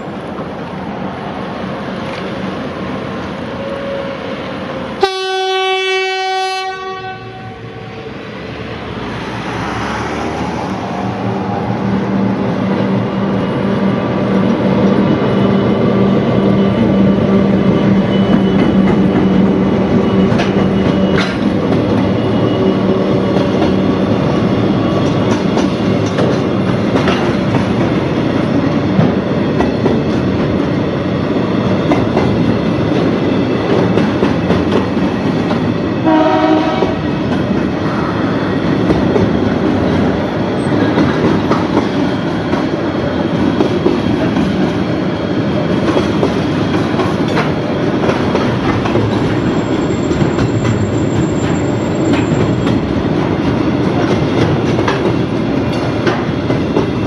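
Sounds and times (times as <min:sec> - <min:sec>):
locomotive engine drone: 0:00.0 - 0:57.0
train horn: 0:03.5 - 0:04.4, 0:05.0 - 0:08.2, 0:36.0 - 0:37.0
freight wagons rumbling: 0:11.2 - 0:35.9, 0:36.9 - 0:57.0
wheels clacking over rail joints: 0:17.6 - 0:30.8, 0:31.6 - 0:57.0.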